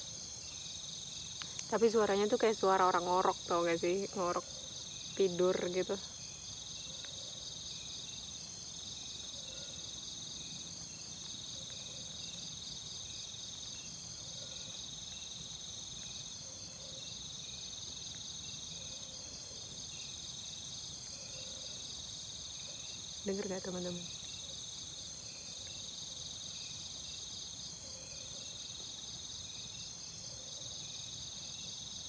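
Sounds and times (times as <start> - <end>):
crickets and insects chirping: 0.0 - 32.0.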